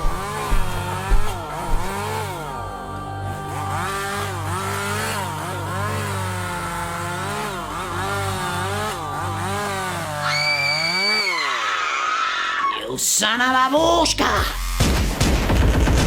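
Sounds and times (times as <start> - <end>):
chainsaw engine revving: 0.0 - 12.6, 14.3 - 16.0.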